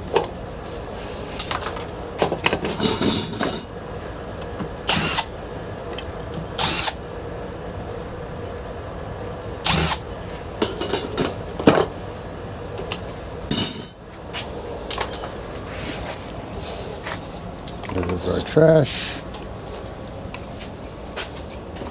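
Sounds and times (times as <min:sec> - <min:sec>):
power drill spinning: 0:04.8 - 0:05.3, 0:06.6 - 0:07.0, 0:09.6 - 0:10.1.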